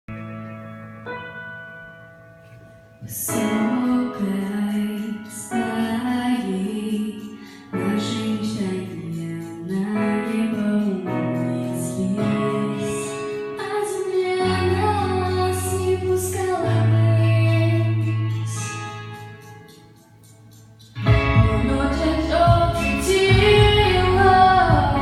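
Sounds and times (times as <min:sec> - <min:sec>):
woman singing slow song: 0:03.0 - 0:18.9, 0:21.2 - 0:25.0
deep bass line: 0:21.0 - 0:25.0.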